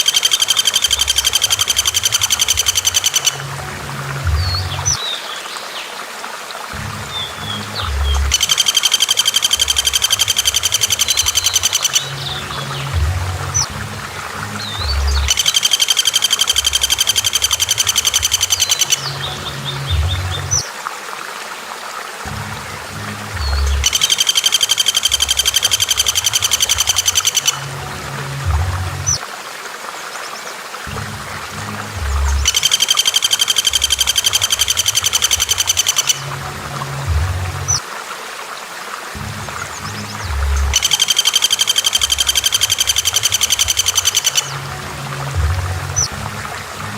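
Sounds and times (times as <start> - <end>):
bird rattling trill: 0.0 - 3.4, 8.3 - 12.1, 15.2 - 19.0, 23.8 - 27.6, 32.4 - 36.2, 40.7 - 44.5
low repeating tones: 0.0 - 5.0, 6.6 - 20.7, 22.2 - 29.2, 30.8 - 37.8, 39.2 - 46.9
low rumbling noise: 12.0 - 15.3, 19.0 - 20.6, 22.3 - 23.9, 27.6 - 29.2, 30.9 - 32.5, 36.2 - 37.8.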